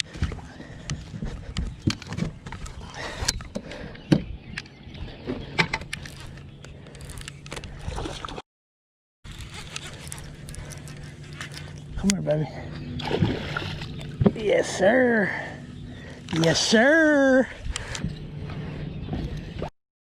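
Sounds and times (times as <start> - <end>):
handling knocks and clicks: 0.1 - 4.7
water sloshing: 7.0 - 8.4, 9.4 - 16.9
steady low hum: 9.3 - 19.7.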